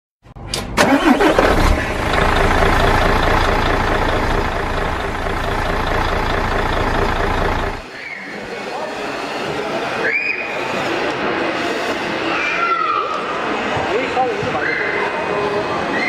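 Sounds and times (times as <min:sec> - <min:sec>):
model truck engine running: 0:00.4 - 0:07.8.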